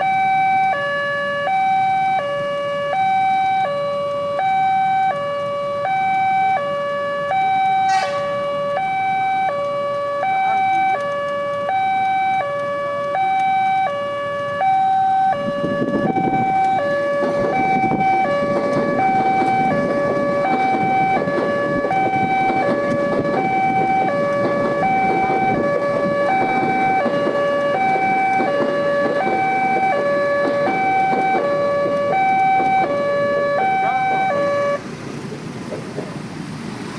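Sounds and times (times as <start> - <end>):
level crossing two-tone alarm: 0.0 - 34.8
train passing rumble: 7.7 - 11.7, 14.2 - 36.9.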